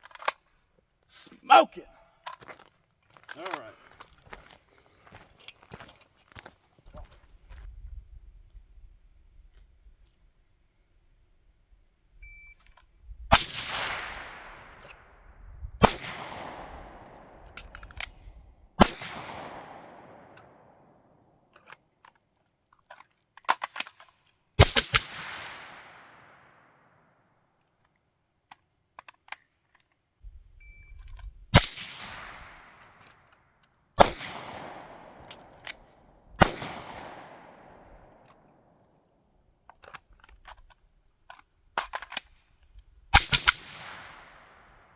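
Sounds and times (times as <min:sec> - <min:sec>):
gun handling clicks: 0:00.0 - 0:00.6, 0:03.2 - 0:04.1, 0:16.4 - 0:18.2, 0:21.5 - 0:26.0, 0:27.6 - 0:30.0, 0:30.9 - 0:38.6, 0:39.6 - 0:44.4
gunshots with long echo: 0:13.3 - 0:15.0, 0:15.8 - 0:17.6, 0:18.8 - 0:21.1, 0:24.6 - 0:27.0, 0:31.6 - 0:33.0, 0:34.0 - 0:38.8, 0:43.2 - 0:44.9.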